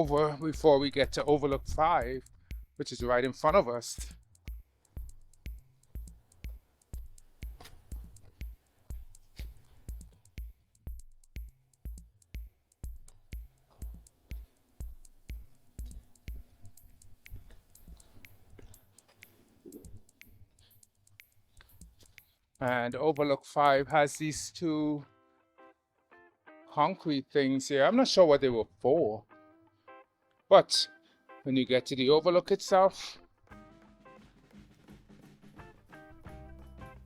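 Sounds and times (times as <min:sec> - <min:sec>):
footsteps on stairs: 0:04.0 - 0:12.0, 0:12.8 - 0:20.3.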